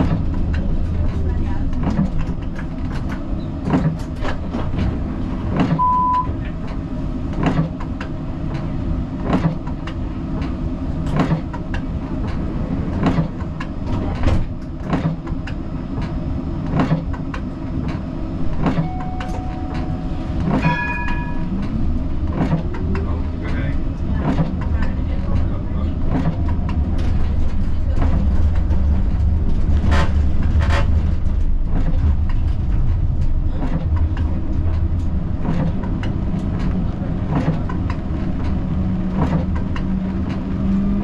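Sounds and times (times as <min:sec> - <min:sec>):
tram rumbling on rails: 0:00.0 - 0:41.0
wheels clicking on track: 0:00.0 - 0:41.0
brief ringing tones: 0:05.8 - 0:06.3, 0:18.8 - 0:21.6
short beep: 0:05.8 - 0:06.4, 0:18.8 - 0:21.6.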